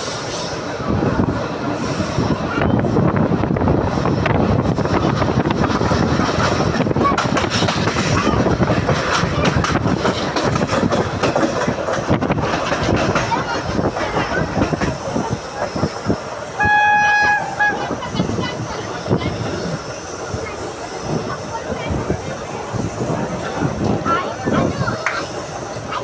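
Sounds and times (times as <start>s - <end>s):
train rumbling: 0.0s - 26.0s
wheels clattering over rail joints: 4.2s - 16.2s.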